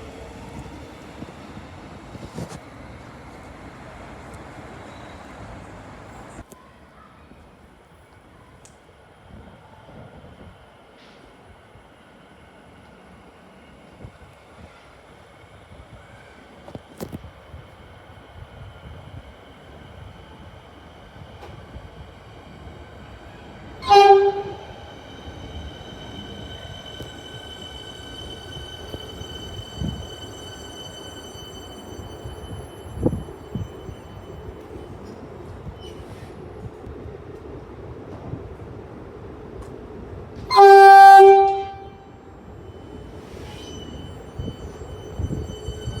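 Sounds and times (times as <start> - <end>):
steady high tones from train: 0.0 - 46.0
train horn blast: 23.8 - 24.8, 40.5 - 42.2
high-pitched whining tones: 42.4 - 46.0.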